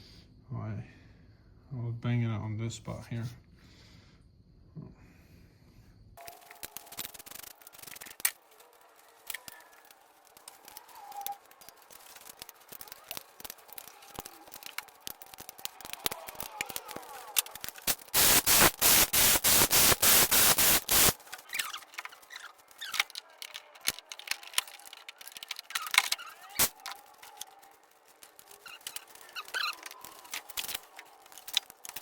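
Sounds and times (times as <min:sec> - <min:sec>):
tools clicking on engine parts: 0:06.2 - 0:18.2, 0:21.1 - 0:32.0
pulsing loud hissing: 0:11.5 - 0:21.2, 0:26.4 - 0:29.6.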